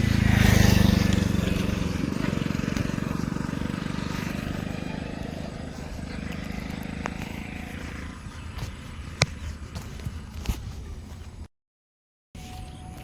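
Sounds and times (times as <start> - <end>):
passing vehicle engine rumbling: 0.0 - 10.4.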